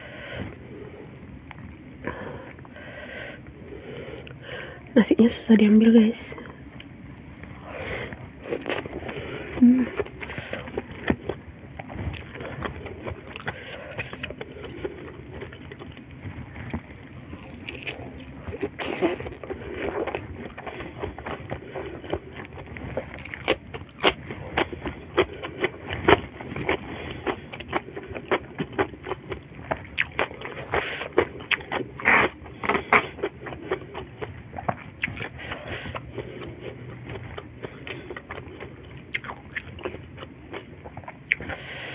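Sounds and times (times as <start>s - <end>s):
wet chewing and lip smacks: 16.6s - 41.6s.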